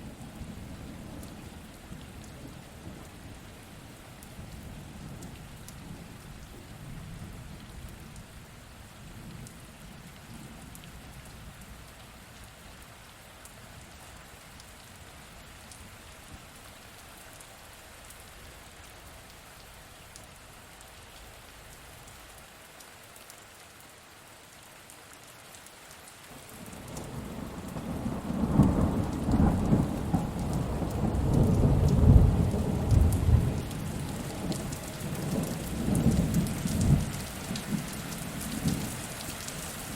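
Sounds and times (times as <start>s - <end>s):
steady rain falling: 0.0s - 39.9s
rolling thunder: 26.7s - 38.9s.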